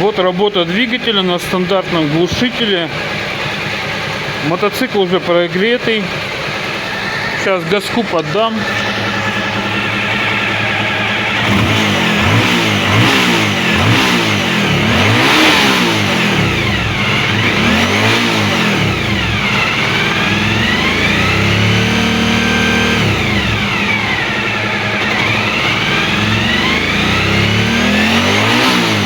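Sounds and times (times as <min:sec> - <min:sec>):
motorcycle engine idling and revving: 0:00.0 - 0:29.0.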